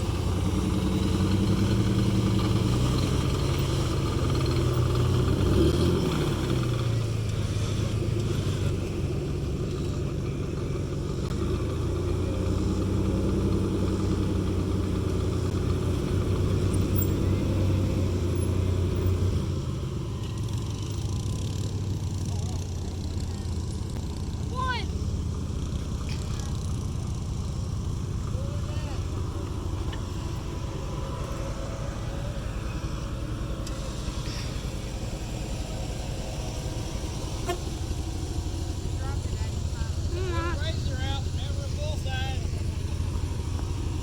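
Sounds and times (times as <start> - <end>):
off-road vehicle engine under load: 0.0 - 44.0.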